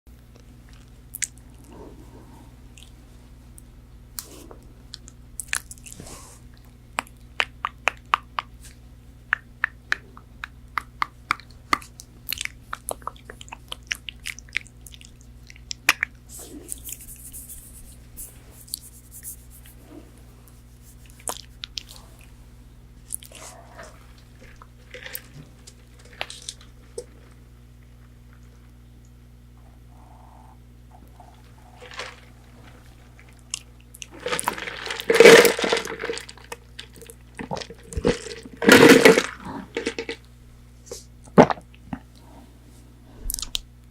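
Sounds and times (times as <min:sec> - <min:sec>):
faint low hum: 0:00.1 - 0:43.9
crunchy chewing of fried food: 0:11.3 - 0:22.4, 0:23.0 - 0:29.2, 0:30.9 - 0:40.2.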